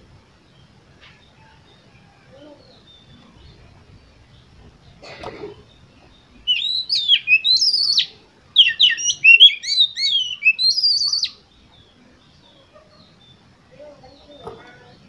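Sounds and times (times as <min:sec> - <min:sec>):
bird singing whistled notes: 0:05.8 - 0:12.0.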